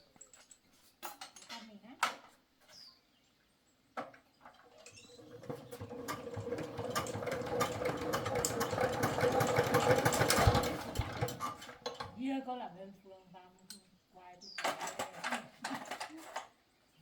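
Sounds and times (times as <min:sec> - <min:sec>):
small motor humming and clattering: 0:04.5 - 0:12.2.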